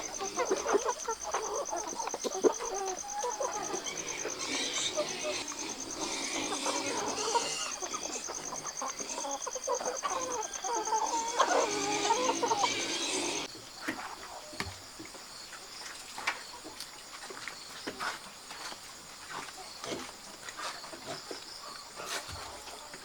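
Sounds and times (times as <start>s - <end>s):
chickens clucking: 0.0s - 14.7s, 19.3s - 23.0s.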